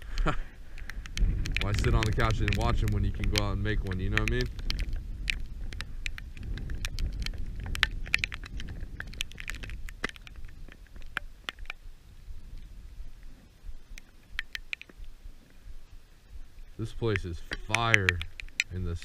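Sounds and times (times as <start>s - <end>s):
heavy rain pattering: 0.0s - 10.6s.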